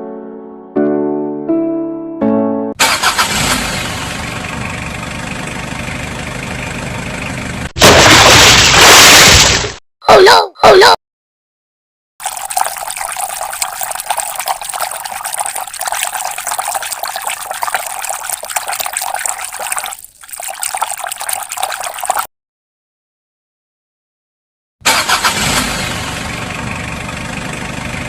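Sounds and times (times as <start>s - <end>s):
water running: 12.2s - 22.3s.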